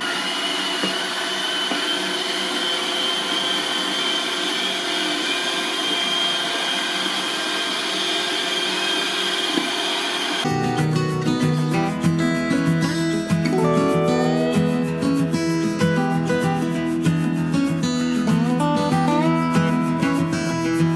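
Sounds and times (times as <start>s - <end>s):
robot vacuum cleaner whirring: 0.0s - 10.5s.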